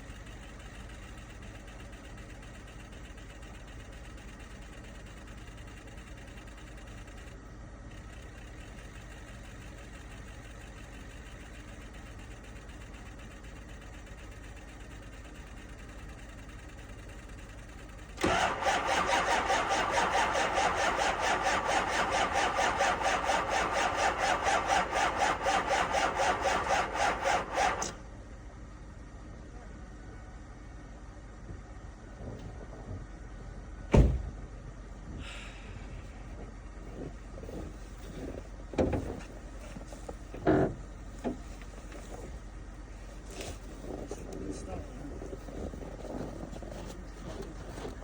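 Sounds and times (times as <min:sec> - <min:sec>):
diesel engine starter cranking: 0:00.0 - 0:28.0.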